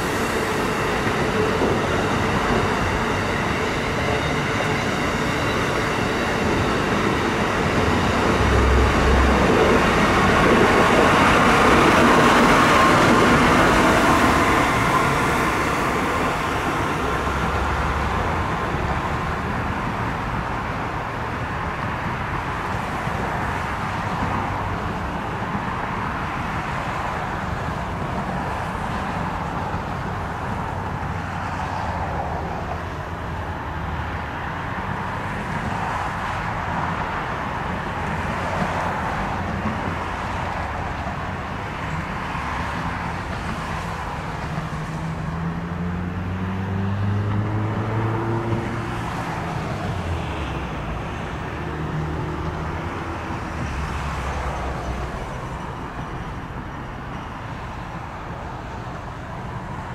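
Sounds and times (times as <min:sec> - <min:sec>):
approaching train rumble: 0:00.0 - 0:59.9
electric train rolling past: 0:00.0 - 0:59.9.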